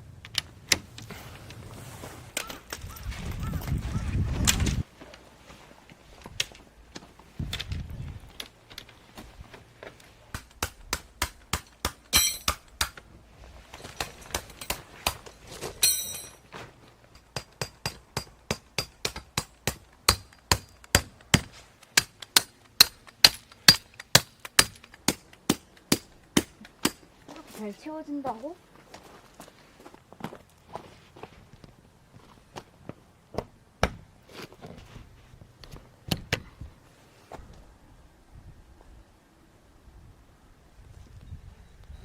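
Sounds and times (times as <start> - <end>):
metallic clink: 12.1 - 12.6, 15.8 - 16.4
hammer striking tent pegs: 17.2 - 27.0.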